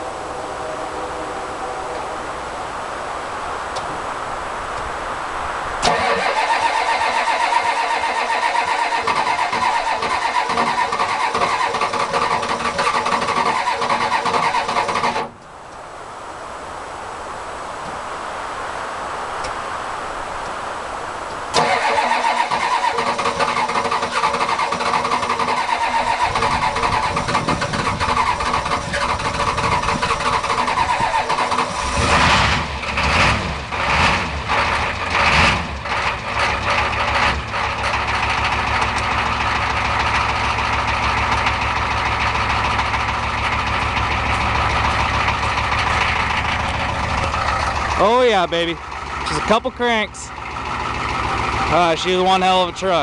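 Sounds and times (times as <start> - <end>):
diesel engine idling: 0.0 - 4.1, 5.8 - 15.6, 21.5 - 53.0
starter motor cranking: 5.8 - 15.3, 21.5 - 32.5.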